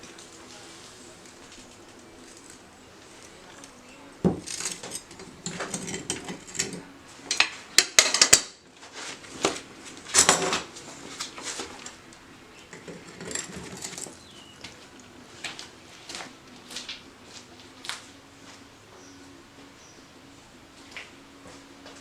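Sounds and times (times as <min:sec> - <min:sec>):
metal objects clinking together: 0:03.2 - 0:08.6, 0:10.1 - 0:10.7, 0:12.6 - 0:14.7.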